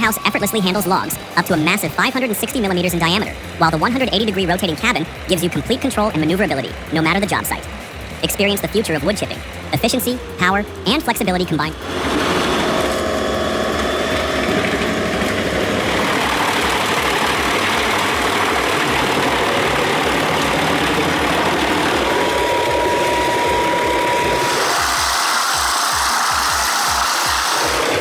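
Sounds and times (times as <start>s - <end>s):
steady high tone: 0.0s - 28.0s
wood-chipper engine running: 0.0s - 28.0s.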